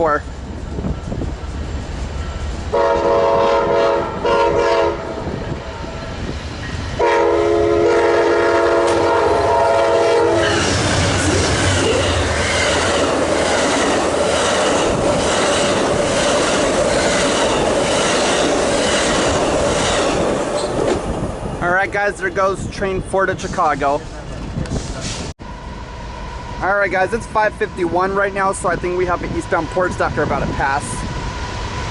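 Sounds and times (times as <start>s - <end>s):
train rail noise: 0.0s - 31.9s
train air horn blasts: 2.7s - 5.9s, 7.0s - 10.6s.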